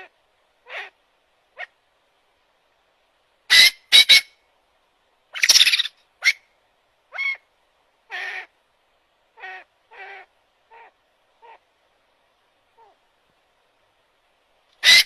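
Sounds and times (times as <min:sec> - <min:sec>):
bird calling: 0:05.4 - 0:06.4.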